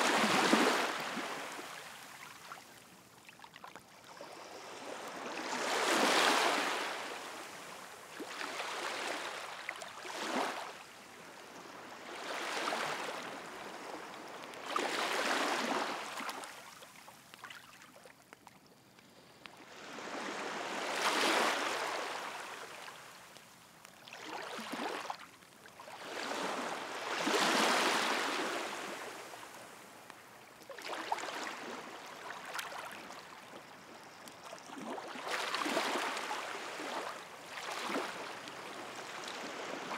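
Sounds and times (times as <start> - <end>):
sea waves washing onto shore: 0.0 - 3.1.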